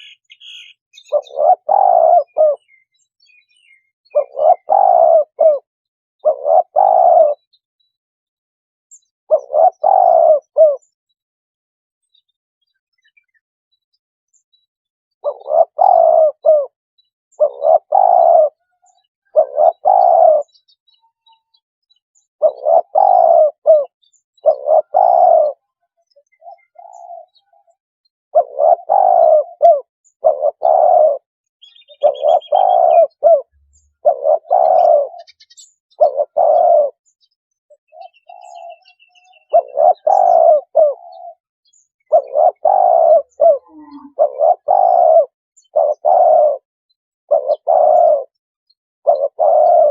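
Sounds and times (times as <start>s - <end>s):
dove cooing: 0.0s - 2.9s, 3.6s - 7.5s, 9.3s - 10.9s, 15.2s - 20.6s, 22.4s - 37.0s, 37.8s - 46.7s, 47.3s - 48.4s, 49.0s - 49.9s.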